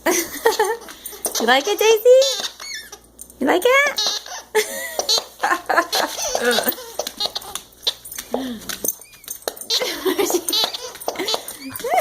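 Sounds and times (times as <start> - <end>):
dog toy baby-like giggles: 0.4 - 3.0, 3.9 - 8.1, 9.5 - 12.0.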